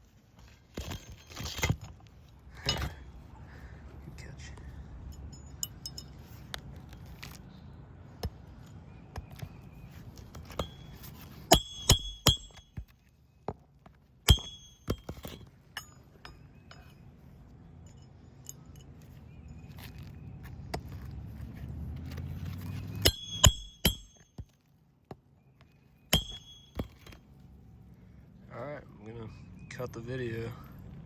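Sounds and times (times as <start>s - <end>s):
metal tools clinking on shingles: 0.3s - 3.2s, 4.7s - 7.4s, 8.2s - 13.1s, 13.9s - 21.1s, 22.4s - 24.6s, 26.0s - 27.4s
loud ringing metal strikes: 23.0s - 24.2s, 26.2s - 27.1s.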